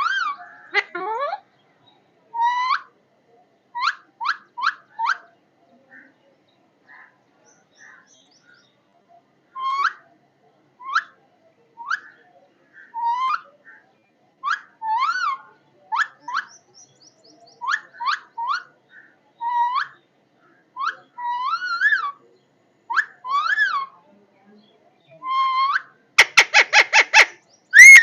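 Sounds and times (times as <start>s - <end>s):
parrot whistled calls: 25.3s - 28.0s.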